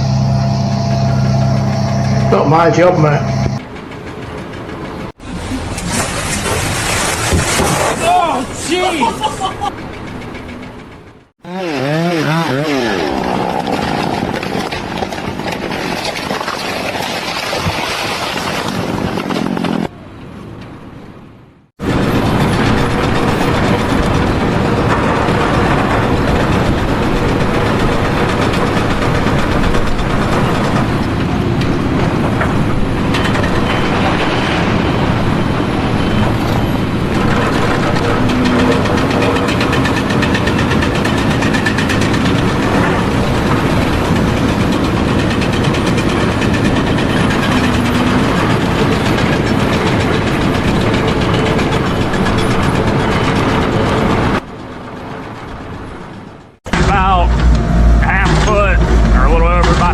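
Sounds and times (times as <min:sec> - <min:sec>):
large engine running: 0:00.0 - 0:05.9, 0:21.8 - 0:59.9.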